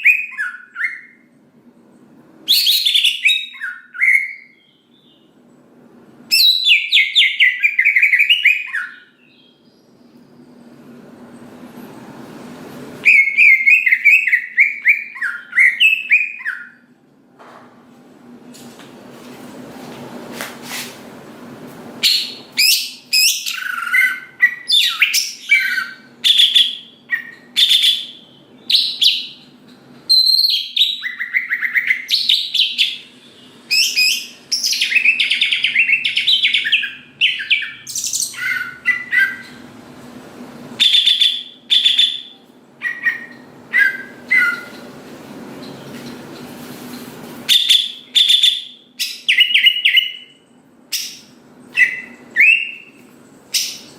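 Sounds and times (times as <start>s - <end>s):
bird singing whistled phrases: 0.0s - 1.3s, 2.5s - 5.3s, 6.3s - 10.5s, 13.0s - 16.9s, 22.0s - 29.4s, 30.1s - 39.6s, 40.8s - 44.7s, 47.5s - 53.9s
faint steady hum: 0.0s - 53.9s.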